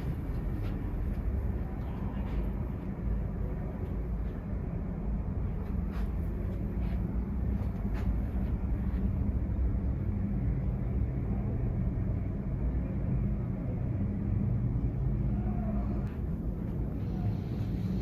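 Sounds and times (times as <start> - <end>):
low vehicle rumble: 0.0 - 18.0.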